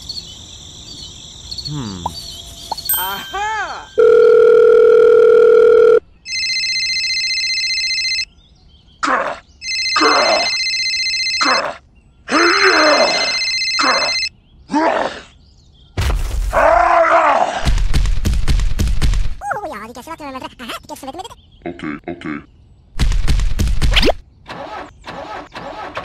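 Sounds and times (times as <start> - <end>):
cartoonish groans and grunts: 1.7 - 2.2, 9.0 - 9.4, 11.4 - 15.3, 19.4 - 22.5
phone ringing: 2.9 - 8.3, 9.6 - 11.6, 13.1 - 14.3.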